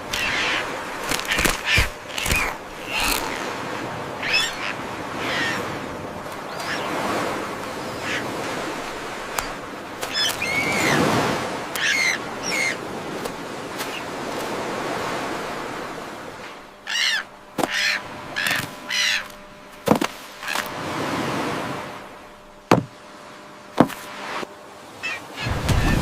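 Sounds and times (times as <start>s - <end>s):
bird giving short calls: 4.2s - 5.7s
sharp knock: 22.7s - 22.9s.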